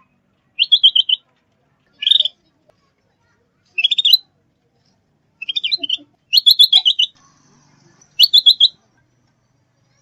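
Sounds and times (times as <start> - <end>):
songbird chattering: 0.6 - 1.2, 2.0 - 2.4, 3.8 - 4.2, 5.4 - 7.2, 8.2 - 8.8.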